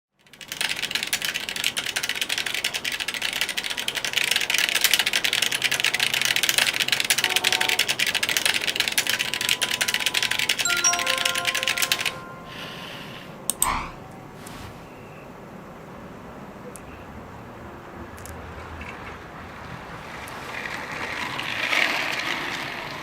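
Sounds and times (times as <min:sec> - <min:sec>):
bird pecking keyboard keys: 0:00.2 - 0:10.6.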